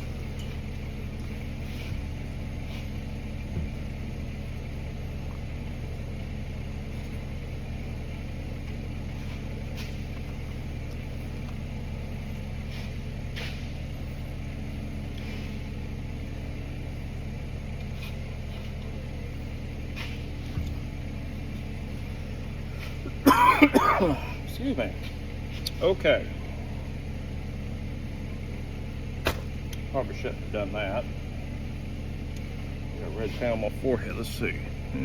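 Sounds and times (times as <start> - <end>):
low machine hum: 0.0 - 35.0
faint short scraping: 12.6 - 14.0, 19.9 - 20.6.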